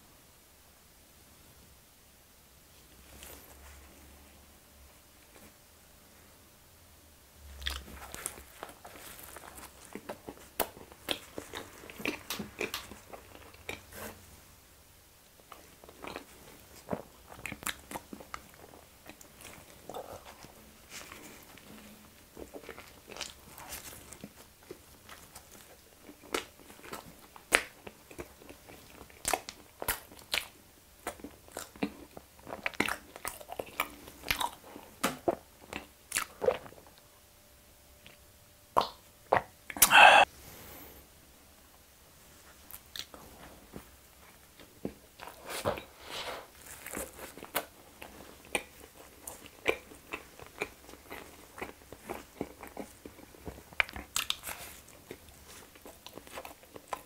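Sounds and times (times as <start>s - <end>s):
chewing and mouth smacks: 7.6s - 14.0s, 15.5s - 37.0s, 42.7s - 43.2s, 46.6s - 57.0s.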